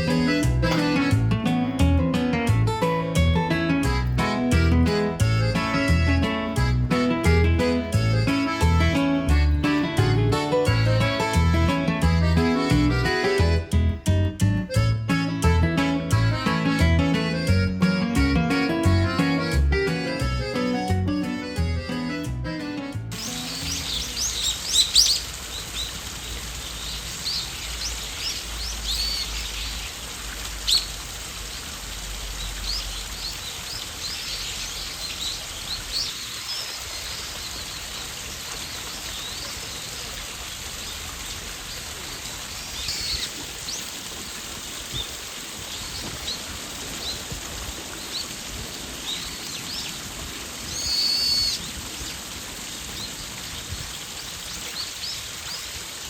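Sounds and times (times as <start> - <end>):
outdoor background hiss: 0.0 - 56.0
songbirds chirping: 22.8 - 30.0, 30.6 - 41.0, 41.6 - 52.2.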